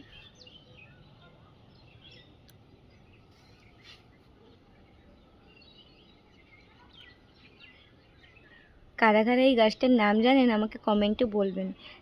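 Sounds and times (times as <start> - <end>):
faint bird chirps: 0.0 - 9.0.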